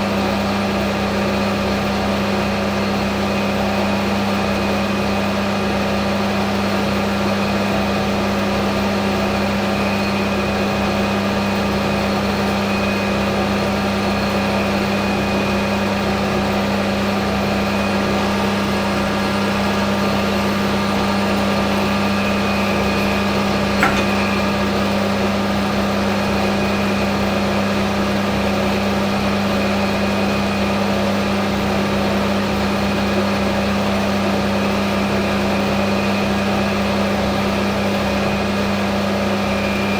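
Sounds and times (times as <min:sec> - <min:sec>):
metal lathe motor hum: 0:18.2 - 0:25.0
short click: 0:23.8 - 0:24.5.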